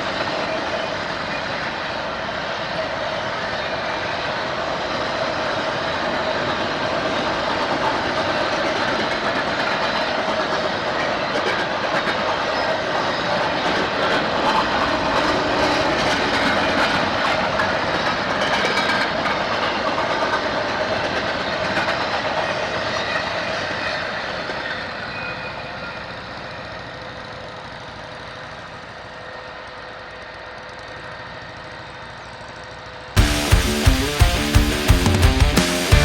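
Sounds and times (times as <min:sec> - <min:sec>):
train rumbling past: 0:00.0 - 0:36.0
wheels clacking over rail joints: 0:04.2 - 0:25.2.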